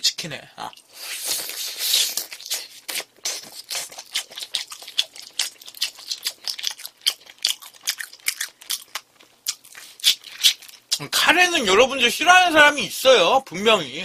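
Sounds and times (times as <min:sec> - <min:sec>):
chewing crispy fried chicken: 0:00.6 - 0:11.0.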